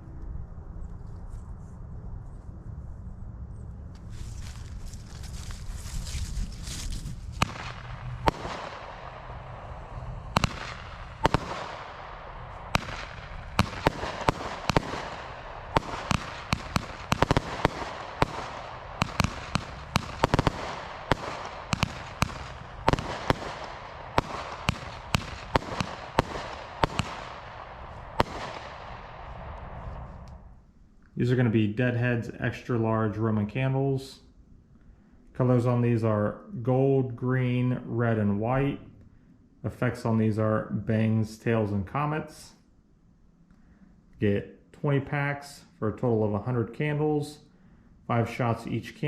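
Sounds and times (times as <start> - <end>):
sharp loud firework bangs: 7.4 - 29.6.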